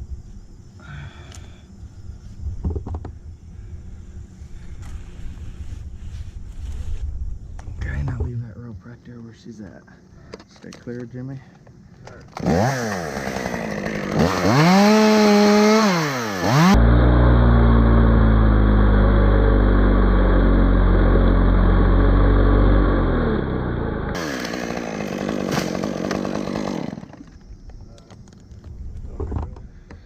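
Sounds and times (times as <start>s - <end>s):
chainsaw revving: 12.3s - 27.4s.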